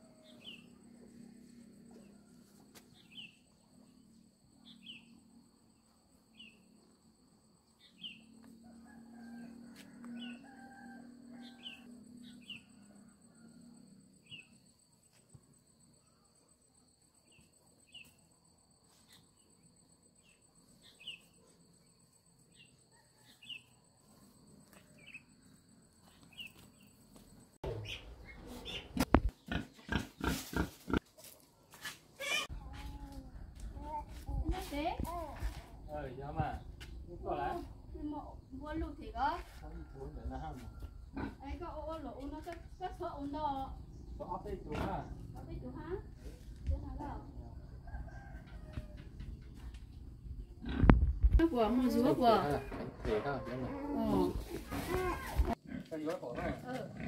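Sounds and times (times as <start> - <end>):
insect drone: 0.0 - 28.4, 32.2 - 52.6
bird chirping: 4.6 - 5.2, 7.8 - 8.4, 20.2 - 21.4, 27.6 - 29.8.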